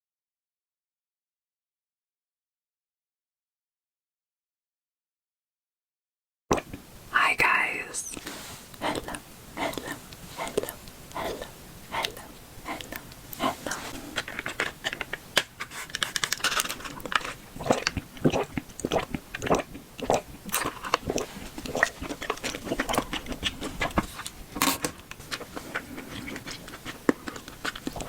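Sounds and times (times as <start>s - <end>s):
person chewing food: 8.2s - 28.0s.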